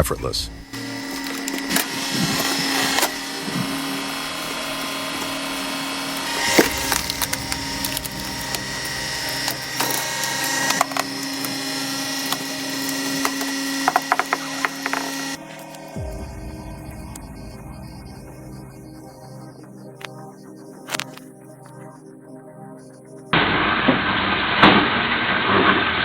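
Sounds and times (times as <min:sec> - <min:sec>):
log splitter humming: 0:00.0 - 0:19.6
wood cracking and splintering: 0:04.4 - 0:15.9.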